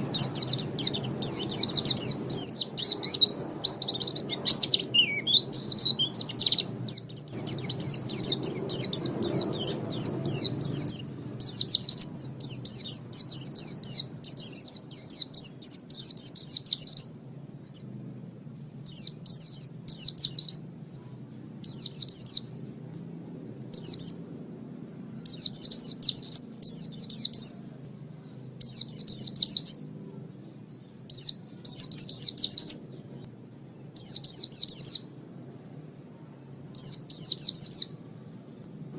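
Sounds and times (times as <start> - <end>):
songbird chattering song: 0.0 - 38.9.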